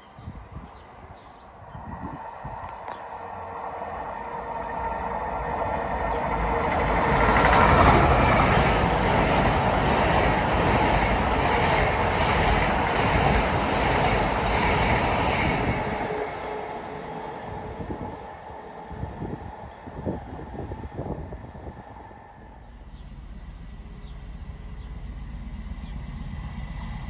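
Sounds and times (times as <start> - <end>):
train passing by: 0.0 - 27.0.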